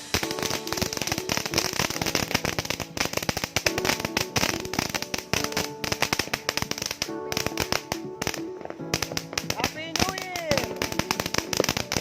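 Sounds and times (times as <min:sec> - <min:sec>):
firecrackers popping: 0:00.0 - 0:12.0
music playing: 0:00.0 - 0:12.0.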